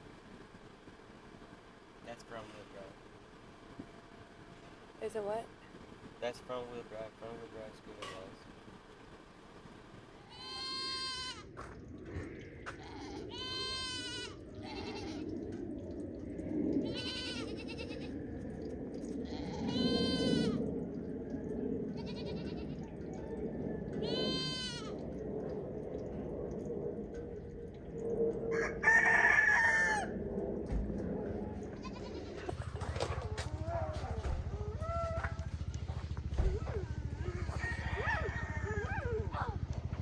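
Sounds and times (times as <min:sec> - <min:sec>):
goats bleating: 0:10.2 - 0:11.5, 0:12.8 - 0:15.2, 0:16.9 - 0:18.1, 0:19.3 - 0:20.6, 0:24.0 - 0:24.9
rooster crowing: 0:28.5 - 0:30.2, 0:36.6 - 0:39.6.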